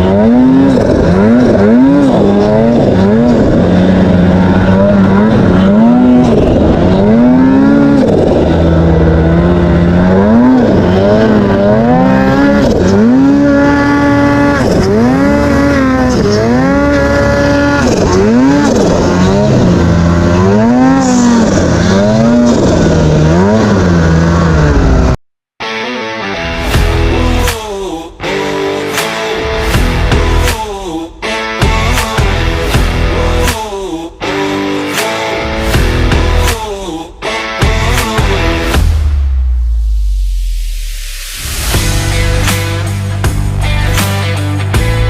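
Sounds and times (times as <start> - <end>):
snowmobile engine revving: 0.0 - 25.2, 28.3 - 30.6, 31.6 - 33.6, 34.3 - 36.6.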